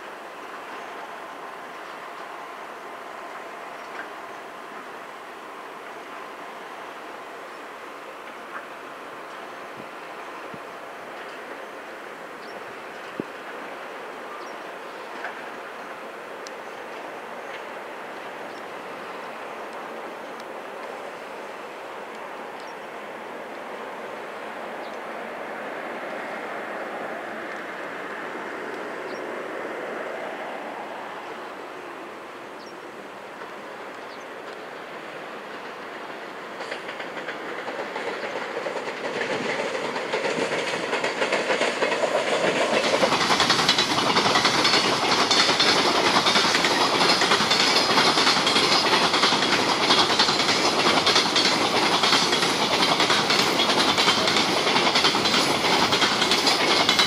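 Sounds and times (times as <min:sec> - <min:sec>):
freight train approaching: 0:00.0 - 0:57.0
wheels clacking over rail joints: 0:35.4 - 0:57.0.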